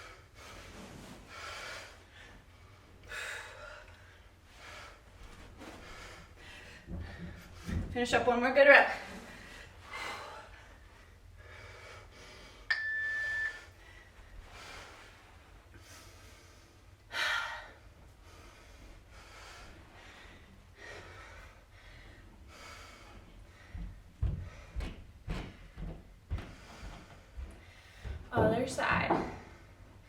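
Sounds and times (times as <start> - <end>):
steady beep: 12.7 - 13.7
heavy breathing: 13.7 - 28.3.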